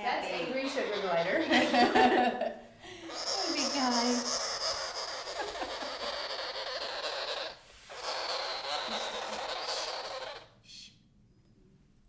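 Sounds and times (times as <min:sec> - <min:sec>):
sugar glider harsh buzzing rasp: 0:00.0 - 0:01.8, 0:03.1 - 0:10.6.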